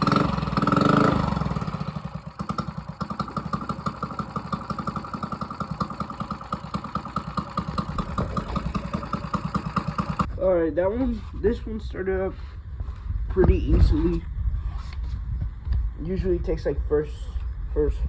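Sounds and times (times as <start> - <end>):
small bike engine idling: 0.0 - 10.3.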